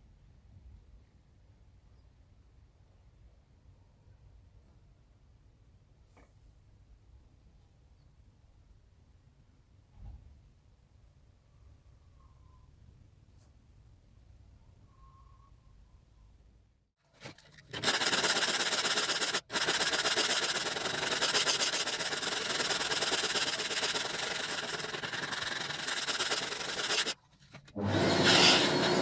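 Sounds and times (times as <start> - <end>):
sanding hard plastic: 17.2 - 29.0.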